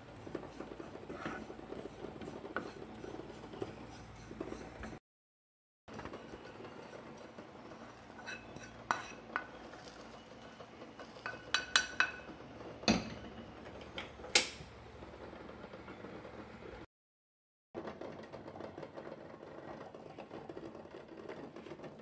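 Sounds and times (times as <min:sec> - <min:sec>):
wooden spatula scraping pan: 0:00.0 - 0:05.0, 0:05.9 - 0:13.9.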